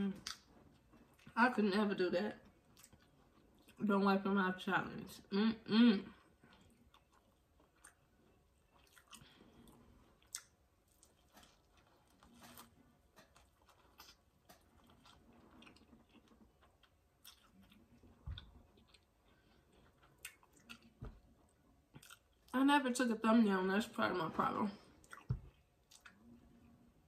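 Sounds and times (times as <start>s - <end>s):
person chewing corn: 0.2s - 1.4s, 2.5s - 3.8s, 6.2s - 22.5s, 25.0s - 26.8s.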